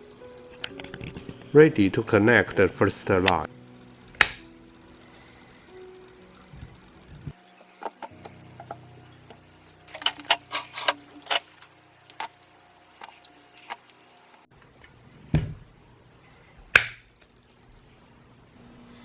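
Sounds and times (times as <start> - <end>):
small metal parts clicking: 7.8 - 14.5.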